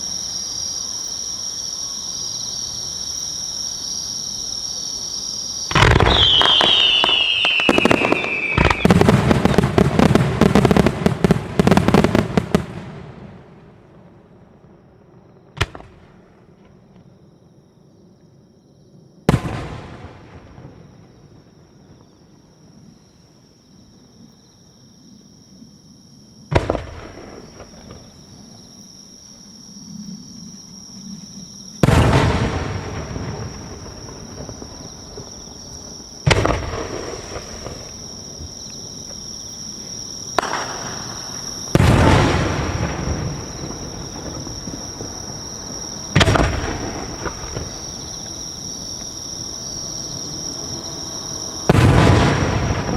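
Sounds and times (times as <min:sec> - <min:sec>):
firework shells booming with echo: 0:05.7 - 0:17.2, 0:19.3 - 0:22.1, 0:26.5 - 0:28.3, 0:31.8 - 0:52.9.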